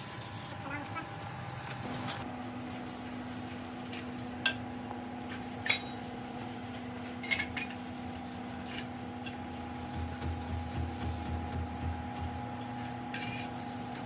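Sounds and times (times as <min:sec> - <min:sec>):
steady machine hum: 0:08.3 - 0:14.0.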